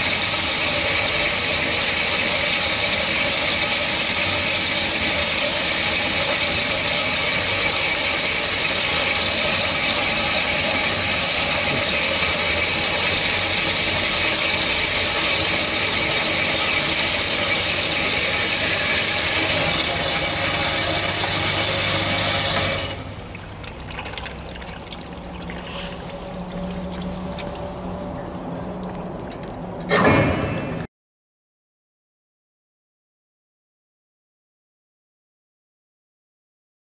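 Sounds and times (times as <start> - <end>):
metal-cutting band saw running: 0.0 - 23.0.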